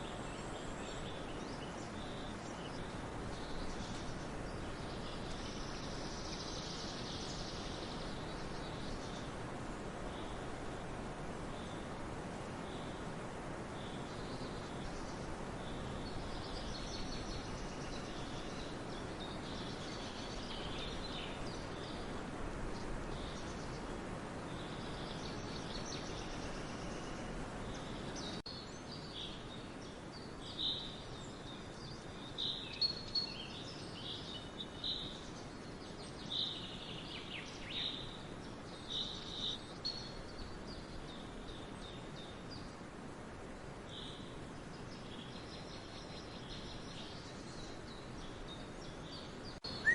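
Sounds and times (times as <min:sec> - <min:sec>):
background hiss: 0:00.0 - 0:49.9
songbirds chirping: 0:00.0 - 0:49.9
nearby bird chirping loudly: 0:49.7 - 0:49.9.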